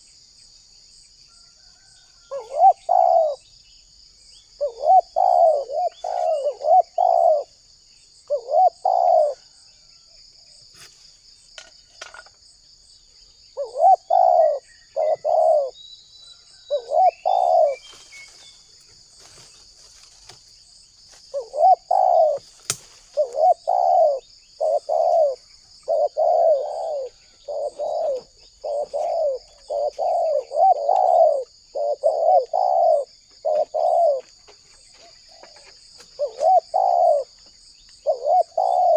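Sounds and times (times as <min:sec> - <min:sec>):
high insect trill: 0:00.0 - 0:38.9
dove cooing: 0:02.3 - 0:03.4, 0:04.6 - 0:07.6, 0:08.2 - 0:09.6, 0:13.6 - 0:15.8, 0:16.6 - 0:17.9, 0:21.3 - 0:34.4, 0:35.0 - 0:37.4, 0:38.0 - 0:38.9.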